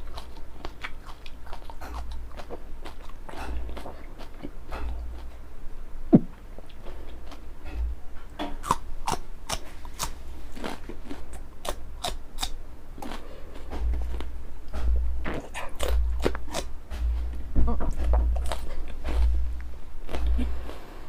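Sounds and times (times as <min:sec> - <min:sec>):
crunching raw chillies: 0:00.0 - 0:05.4, 0:06.6 - 0:21.0
wet chewing clicks: 0:00.0 - 0:05.4, 0:08.6 - 0:13.3, 0:15.2 - 0:16.7
low thumps: 0:06.1 - 0:06.4, 0:13.7 - 0:20.6.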